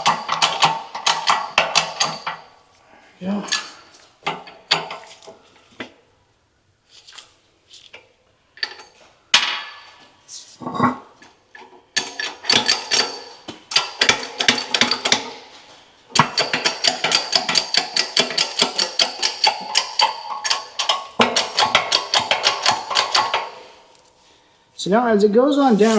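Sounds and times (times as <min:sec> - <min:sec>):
metal hand tools clanking: 0:00.0 - 0:02.5, 0:16.2 - 0:23.8
fast metallic clicking: 0:16.2 - 0:23.5.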